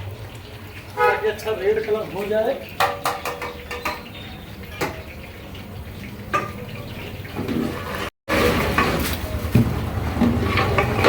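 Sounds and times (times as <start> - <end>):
utensil knocks: 2.8 - 4.1.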